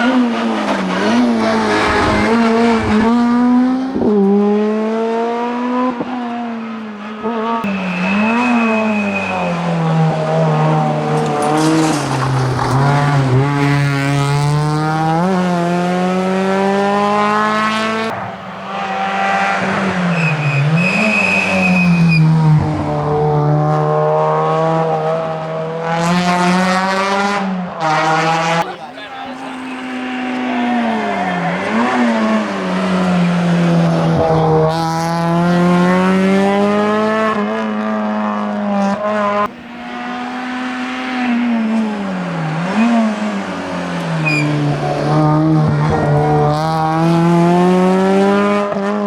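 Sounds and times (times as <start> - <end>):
rally car engine revving: 0.0 - 49.0
tyre squeals: 6.0 - 13.2, 17.3 - 22.8, 28.6 - 36.7, 39.0 - 47.0.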